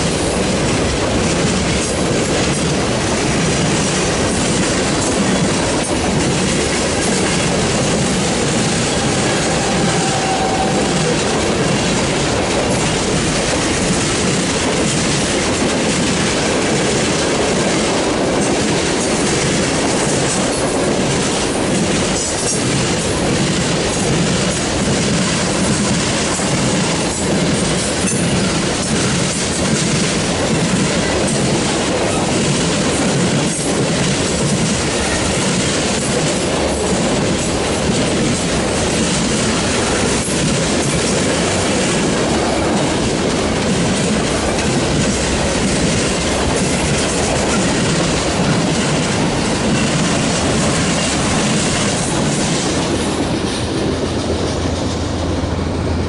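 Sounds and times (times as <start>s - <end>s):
freight train wheel clatter: 0.0s - 56.0s.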